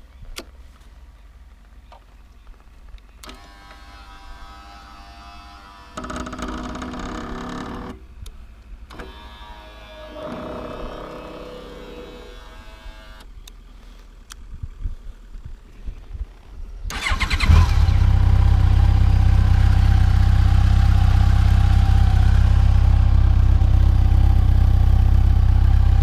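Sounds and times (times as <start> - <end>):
electric windscreen motor whirring: 8.9 - 13.3.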